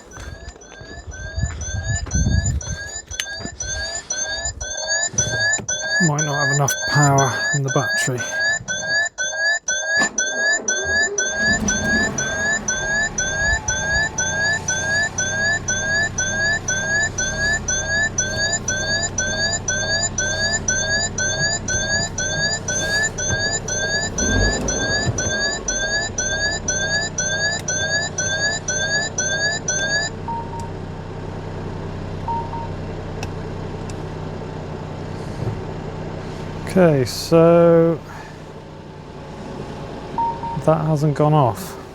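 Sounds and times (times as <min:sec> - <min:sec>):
electronic sounder chirping: 0:00.0 - 0:30.6.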